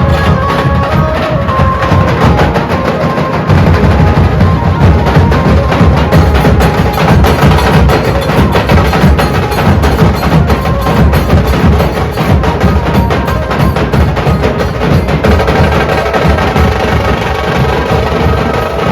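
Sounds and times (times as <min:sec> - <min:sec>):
low drum booms: 0:03.5 - 0:18.6.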